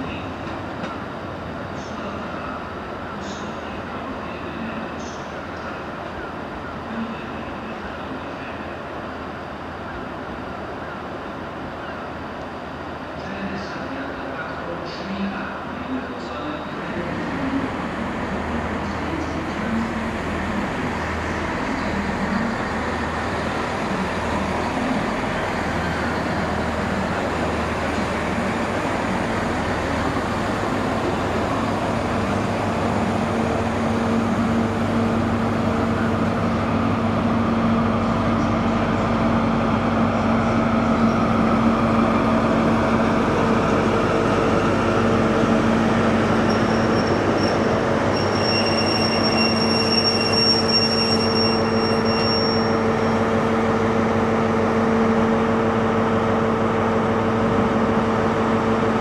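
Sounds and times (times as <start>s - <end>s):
diesel train engine hum: 0.0s - 59.0s
high brake squeal: 46.4s - 53.3s.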